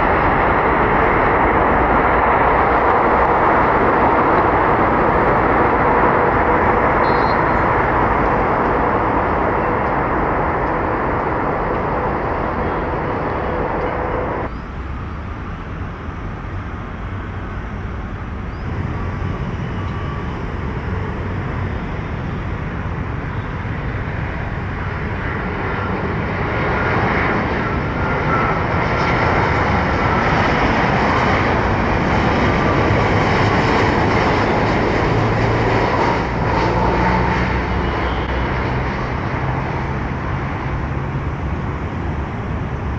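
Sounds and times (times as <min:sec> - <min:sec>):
faint engine whine: 0:00.0 - 0:42.9
jet engines running: 0:00.0 - 0:42.9.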